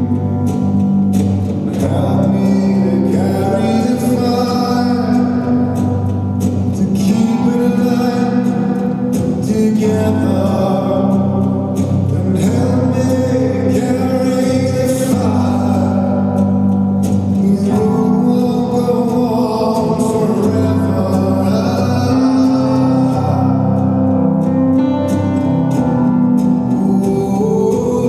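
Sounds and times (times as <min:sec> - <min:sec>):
man singing: 0:00.0 - 0:24.8, 0:26.2 - 0:28.0
guitar accompaniment: 0:00.0 - 0:28.0.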